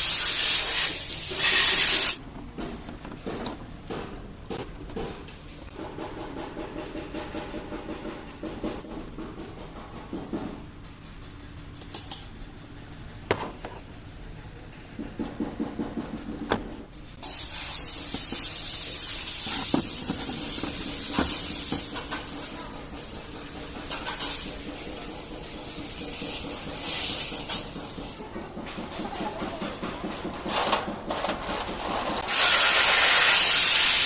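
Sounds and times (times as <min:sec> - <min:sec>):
loud steady hiss: 0:00.0 - 0:02.2, 0:17.2 - 0:22.6, 0:32.2 - 0:34.0.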